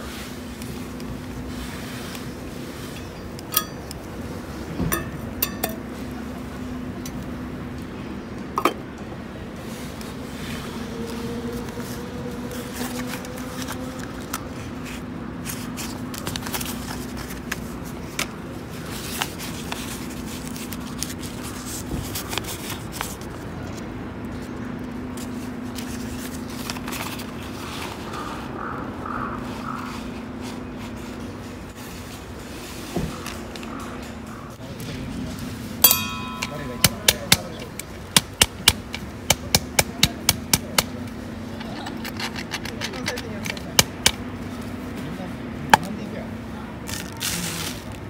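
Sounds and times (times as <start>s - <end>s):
metal cookware clinking: 3.5s - 3.9s, 4.9s - 5.9s, 35.8s - 37.6s.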